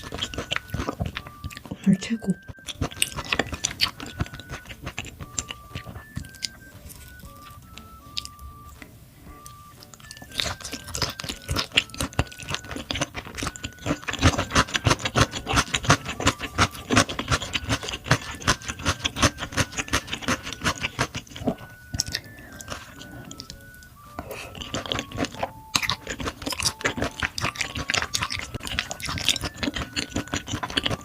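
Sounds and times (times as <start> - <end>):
chewing and crunching food: 0.0 - 31.0
soft background music: 0.0 - 31.0.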